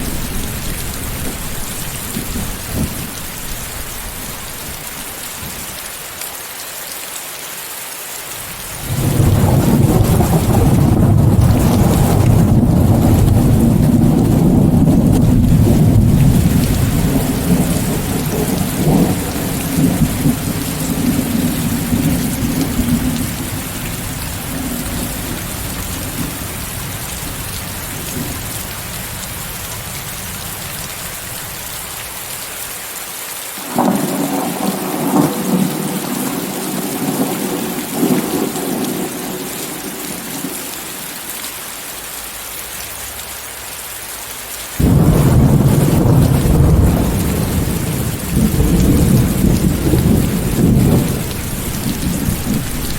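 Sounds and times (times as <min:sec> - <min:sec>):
thunderclap: 0:00.0 - 0:03.2, 0:08.8 - 0:28.5, 0:44.8 - 0:52.9
thunder rumbling: 0:00.0 - 0:05.7, 0:08.8 - 0:31.5, 0:33.6 - 0:40.7, 0:44.8 - 0:52.9
steady rain: 0:00.0 - 0:52.9.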